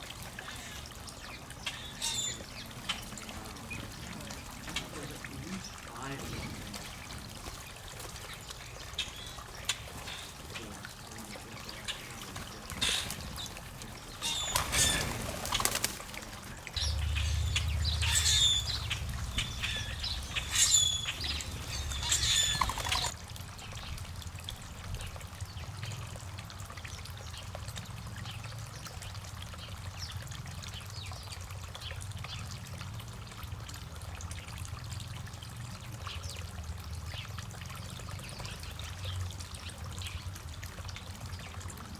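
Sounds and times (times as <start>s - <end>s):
wings fluttering: 0.0s - 23.2s
birds calling: 0.0s - 24.1s
water trickling into pond: 0.0s - 41.9s
low rumble: 16.8s - 21.7s.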